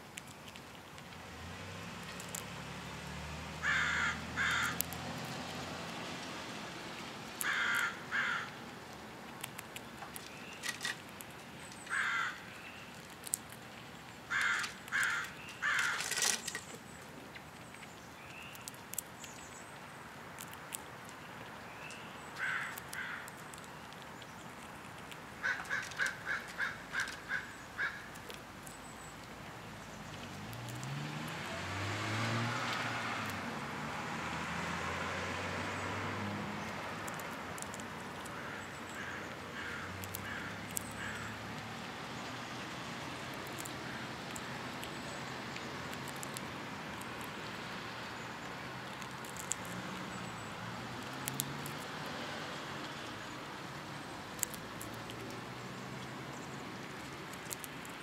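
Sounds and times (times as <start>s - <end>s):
harsh caw-like bird calls: 3.6s - 4.8s, 7.4s - 8.6s, 11.9s - 12.8s, 14.3s - 16.2s, 22.4s - 23.4s, 25.4s - 28.2s, 38.3s - 41.4s.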